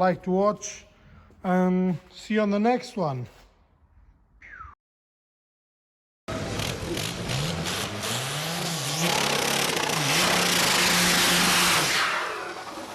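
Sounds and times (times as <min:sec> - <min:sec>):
car engine revving: 0:06.3 - 0:12.9.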